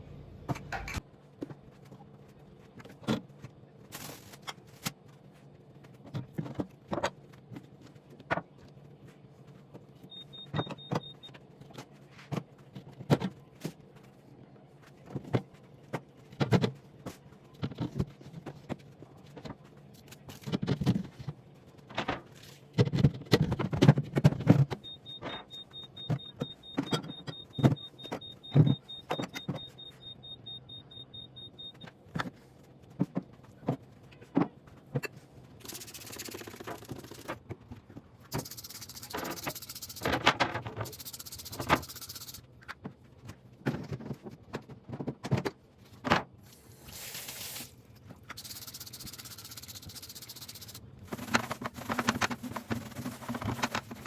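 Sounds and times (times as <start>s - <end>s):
low steady hum: 0.0s - 20.4s
rapid high electronic beeping: 35.6s - 37.3s, 38.3s - 40.1s, 40.8s - 42.4s, 48.4s - 50.8s
objects knocking and clattering: 51.1s - 54.0s.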